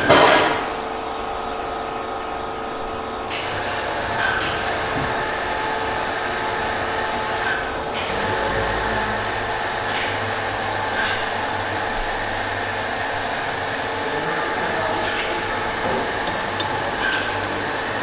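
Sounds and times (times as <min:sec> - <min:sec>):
workshop mechanical noise: 0:00.0 - 0:18.0.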